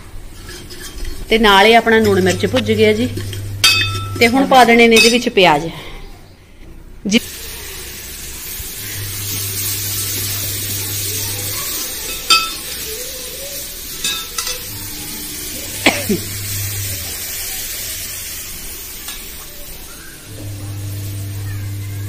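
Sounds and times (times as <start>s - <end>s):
oil sizzling in a pot: 0.0s - 5.2s, 7.2s - 22.0s
metal clinks of bowl and ladle: 1.9s - 5.4s, 12.1s - 12.7s, 14.0s - 14.7s.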